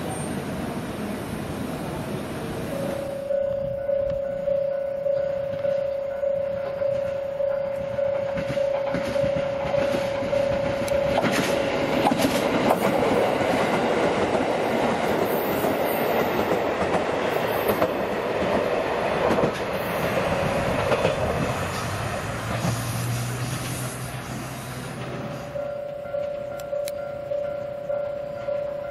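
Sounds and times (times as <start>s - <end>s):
train rumbling past: 0.0s - 28.9s
repeating tone: 3.0s - 11.7s
wheels clicking over rail joints: 6.6s - 28.9s.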